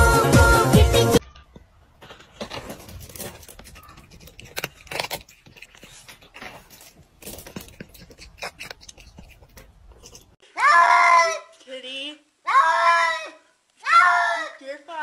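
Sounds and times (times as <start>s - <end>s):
cat crunching dry kibble: 2.1s - 10.3s.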